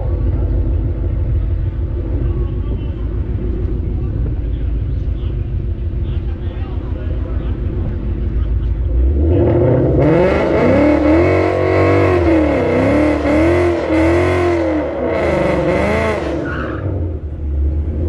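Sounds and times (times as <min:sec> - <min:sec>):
car engine revving hard: 0:08.9 - 0:18.0.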